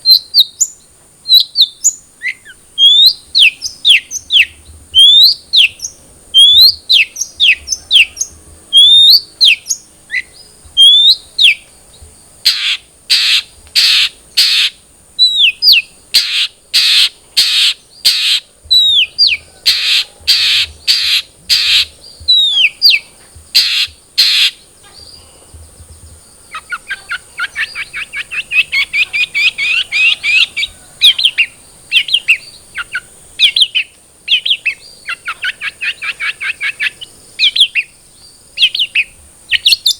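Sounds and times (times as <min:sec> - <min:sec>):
bird whistled notes: 0:00.0 - 0:11.6, 0:12.5 - 0:23.0
harsh rasping bird calls: 0:00.0 - 0:39.9
fast chattering bird trill: 0:15.3 - 0:25.2, 0:26.5 - 0:37.8.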